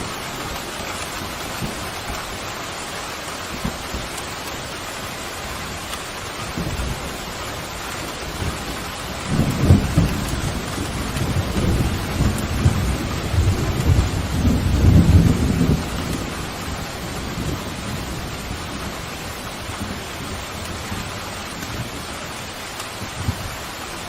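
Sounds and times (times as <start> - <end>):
heavy rain: 0.0 - 24.0
rolling thunder rumble: 6.4 - 23.6.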